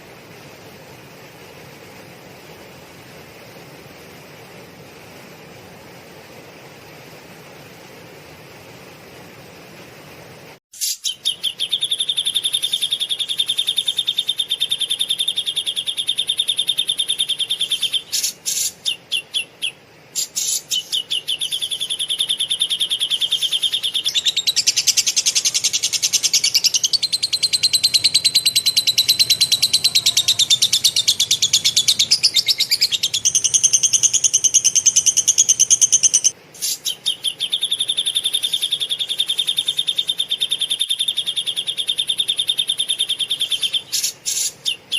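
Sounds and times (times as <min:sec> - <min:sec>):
songbird rapid trilling: 0:10.8 - 0:44.9.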